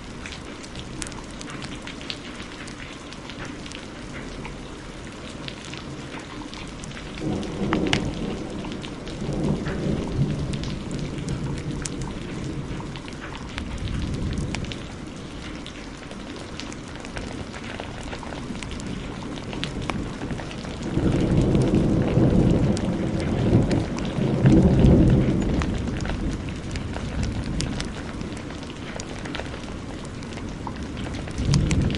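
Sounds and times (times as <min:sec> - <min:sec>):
heavy rain: 0:00.0 - 0:31.9
wood fire crackling: 0:00.0 - 0:31.9
thunder rolling: 0:06.9 - 0:15.1, 0:17.1 - 0:31.9.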